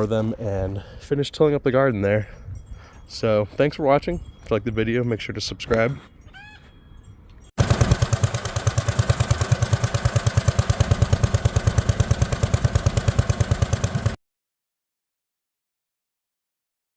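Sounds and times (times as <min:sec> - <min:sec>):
garden tractor engine running: 0:07.6 - 0:14.2.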